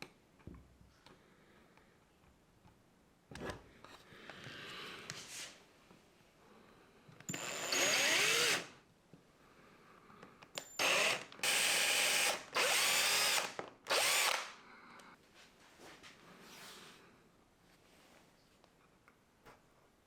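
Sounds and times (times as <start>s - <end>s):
power tool cutting wood: 7.4s - 8.7s, 10.8s - 14.5s.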